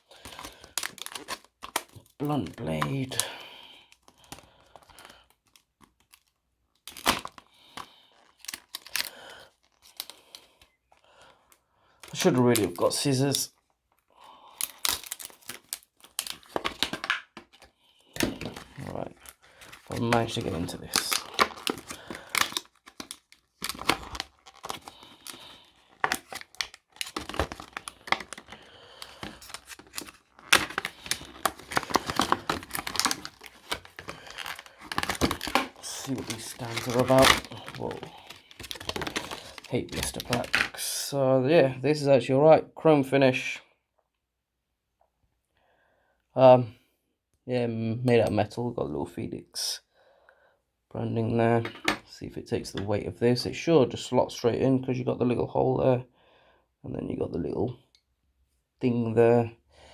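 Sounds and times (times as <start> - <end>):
plastic blister pack crackling: 0.0 - 11.4, 12.0 - 13.6, 14.4 - 41.0.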